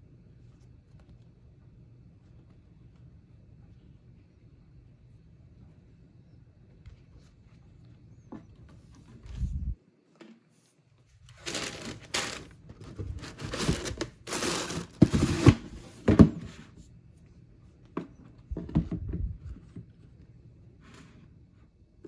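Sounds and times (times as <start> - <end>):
packaging crinkling: 11.3 - 12.5, 13.2 - 15.6.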